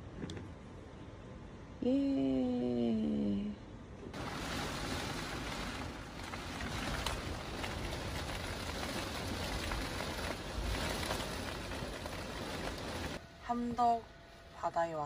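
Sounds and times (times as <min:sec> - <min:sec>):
rain on car roof: 0:04.2 - 0:13.2
raindrops ticking: 0:04.2 - 0:13.2.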